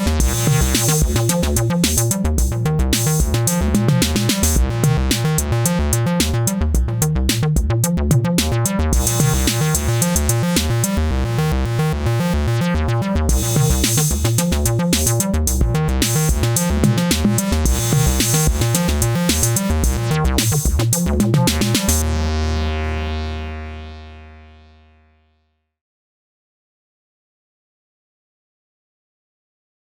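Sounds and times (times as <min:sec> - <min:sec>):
drum machine beat: 0:00.0 - 0:11.0, 0:13.3 - 0:22.0
acid bass pattern: 0:00.0 - 0:25.4
low held synth note: 0:22.0 - 0:25.4.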